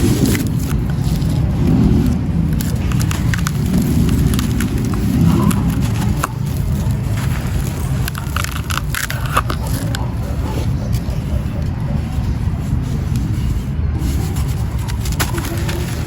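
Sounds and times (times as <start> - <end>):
crackles of breaking grains: 0.0 - 11.4.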